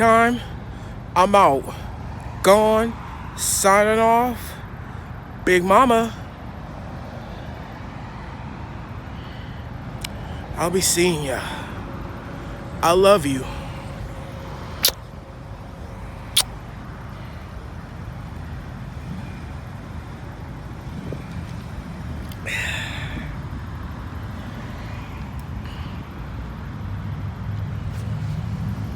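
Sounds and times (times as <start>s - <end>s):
road traffic rumble: 0.0s - 28.9s
car passing hiss: 5.8s - 27.0s.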